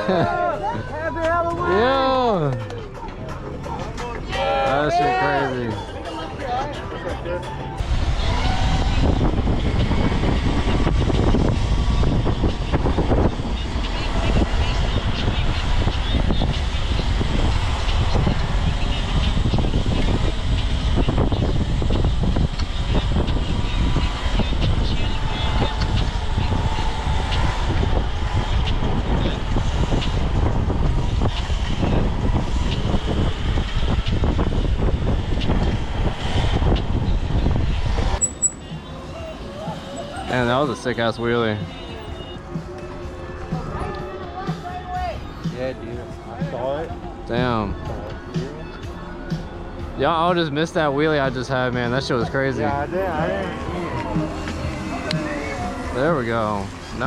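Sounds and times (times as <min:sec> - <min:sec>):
road rumble: 0:00.0 - 0:57.0
wind buffeting microphone: 0:07.8 - 0:38.2.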